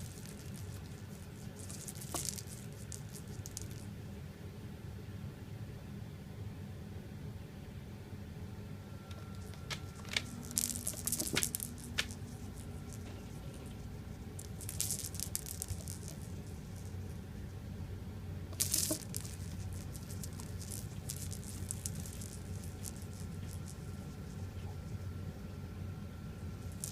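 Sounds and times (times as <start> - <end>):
cat rustling and scratching: 0.0 - 3.9, 9.1 - 17.5, 18.6 - 25.6
low hum: 8.0 - 26.9.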